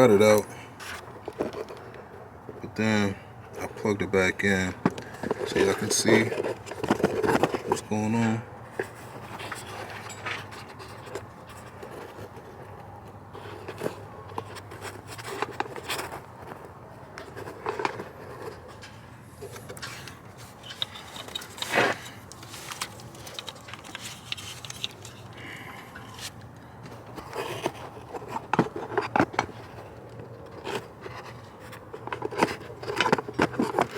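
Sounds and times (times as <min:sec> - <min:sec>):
hands clicking and scraping: 0:08.7 - 0:33.9.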